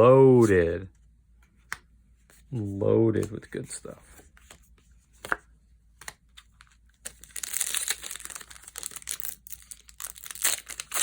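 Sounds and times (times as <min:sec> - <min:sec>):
plastic foil wrapper crinkling: 0:07.1 - 0:11.0.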